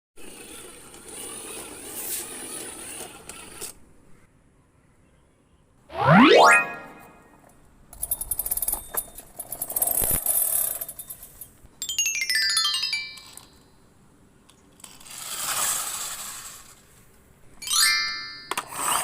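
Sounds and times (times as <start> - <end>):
falling run of beeping tones: 5.9 - 7.2.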